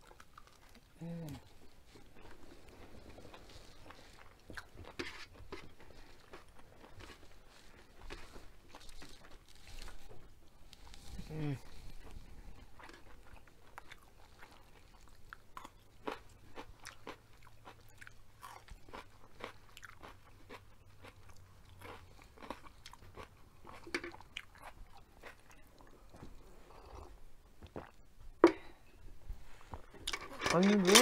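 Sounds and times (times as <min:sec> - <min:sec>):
crunching bell pepper: 0:12.0 - 0:25.7.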